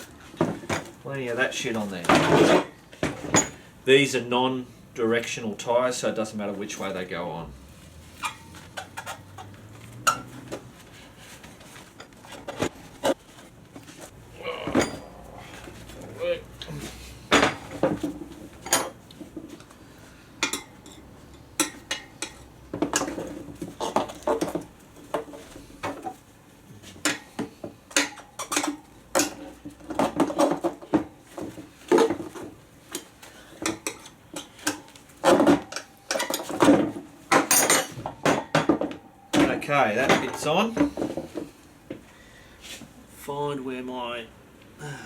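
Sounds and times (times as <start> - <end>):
tyre levers clinking on metal rim: 8.2 - 10.3, 14.7 - 15.1.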